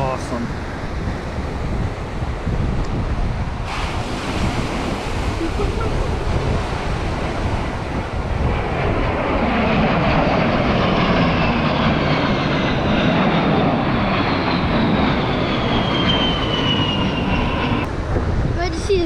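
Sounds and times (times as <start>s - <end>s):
military aircraft flying past: 0.0s - 18.6s
high engine whine falling in pitch: 10.5s - 17.9s.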